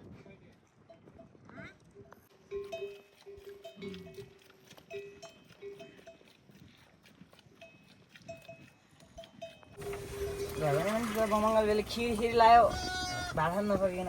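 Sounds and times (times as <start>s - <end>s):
livestock bells clinking: 0.8s - 6.4s, 7.6s - 12.6s.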